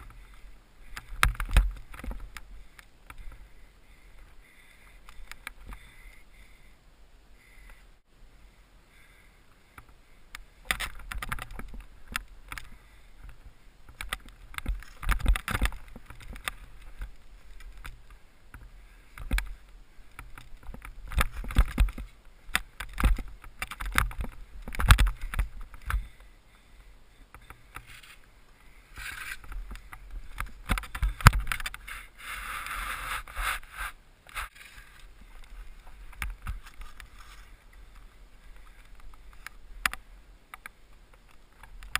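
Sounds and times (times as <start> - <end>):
skis swishing through snow: 31.8 - 35.0.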